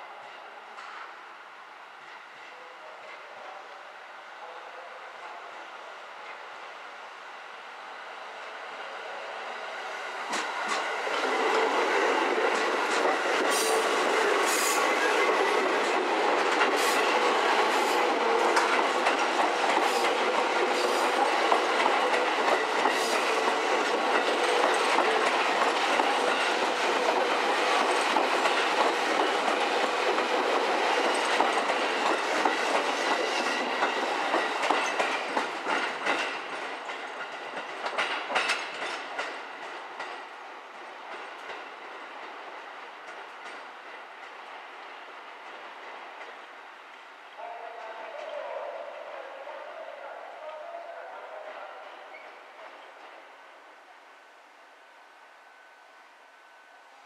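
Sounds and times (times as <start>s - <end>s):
electric train passing: 5.7s - 57.0s
wheels clicking over rail joints: 18.5s - 40.2s.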